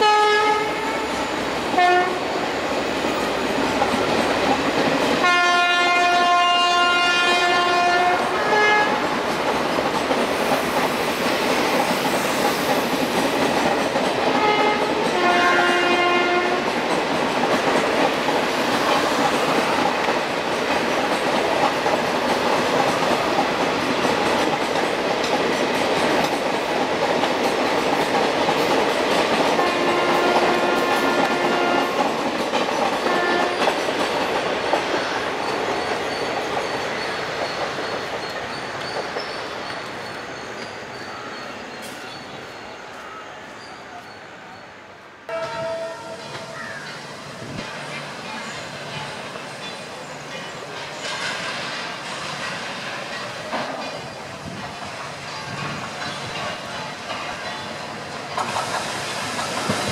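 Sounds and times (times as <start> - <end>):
locomotive horn blasts: 0.0 - 1.2, 1.8 - 2.2, 5.2 - 9.0, 14.4 - 16.7, 29.6 - 31.9, 33.1 - 33.7, 45.3 - 46.5
train wheels clattering over joints: 9.0 - 42.2, 46.2 - 59.9.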